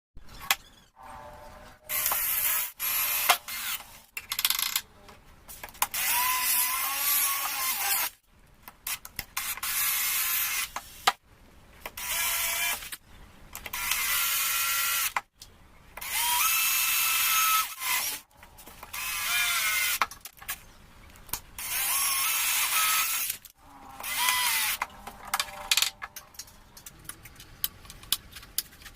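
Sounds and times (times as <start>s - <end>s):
power tool running: 21.6s - 25.9s.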